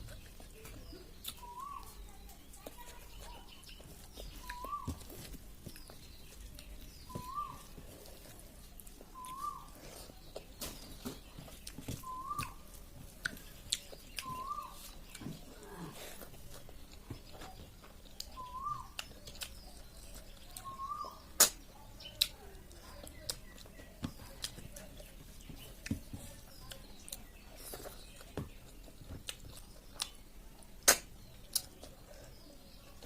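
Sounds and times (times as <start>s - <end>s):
eating clicks and smacks: 0.0s - 4.7s, 13.2s - 32.0s.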